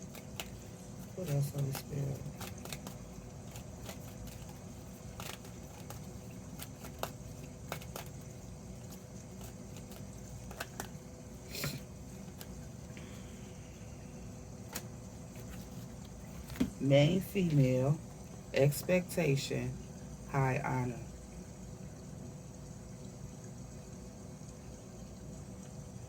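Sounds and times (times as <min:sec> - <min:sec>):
cards clicking and tapping: 0:00.0 - 0:12.6, 0:14.7 - 0:16.8
steady low hum: 0:00.0 - 0:26.0.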